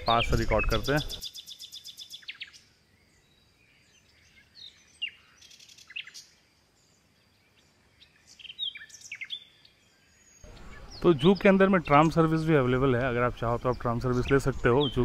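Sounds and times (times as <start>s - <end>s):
birds chirping: 0.0s - 15.0s
faint outdoor hush: 0.0s - 15.0s.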